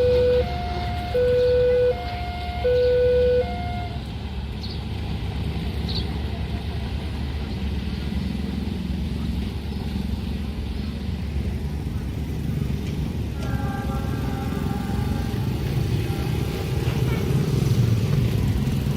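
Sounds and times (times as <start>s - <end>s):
two-tone crossing warning alarm: 0.0s - 4.1s
low rumble of passing vehicles: 0.0s - 18.9s.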